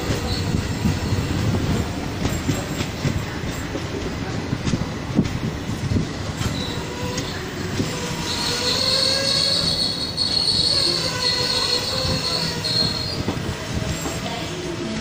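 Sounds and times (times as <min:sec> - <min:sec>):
high wheel squeal: 0:00.0 - 0:01.4, 0:06.4 - 0:14.3
freight train rumbling past: 0:00.0 - 0:15.0.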